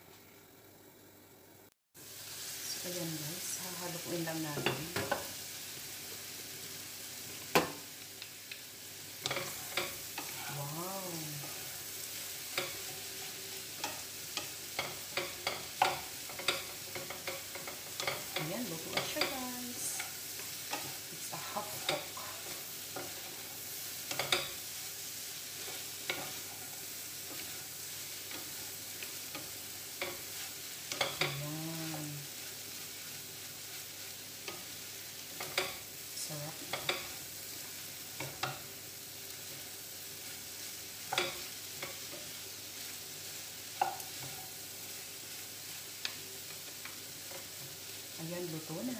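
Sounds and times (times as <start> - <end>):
food sizzling in a frying pan: 0.0 - 48.9
wooden spatula scraping a pan: 9.2 - 10.7, 11.3 - 35.8, 36.6 - 48.1.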